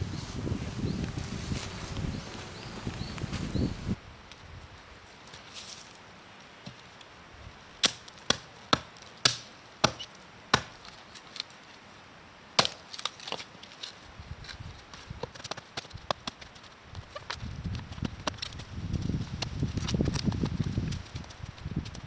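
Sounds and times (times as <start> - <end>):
wood being chopped: 7.8 - 10.9, 12.6 - 13.3.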